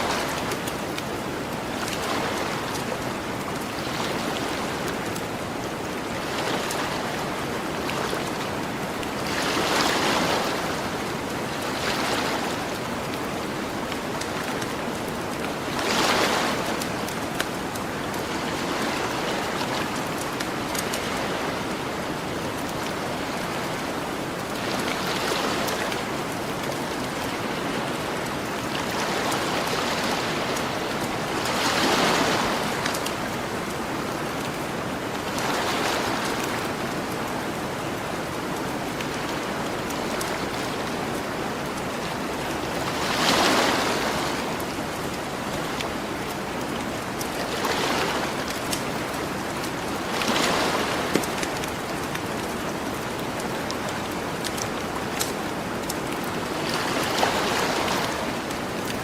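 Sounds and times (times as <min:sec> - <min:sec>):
ocean waves breaking on beach: 0:00.0 - 0:59.0
campfire crackling: 0:51.0 - 0:56.6.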